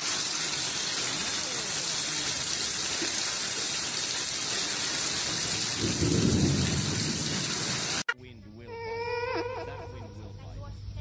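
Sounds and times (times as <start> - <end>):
running water rushing: 0.0 - 8.1.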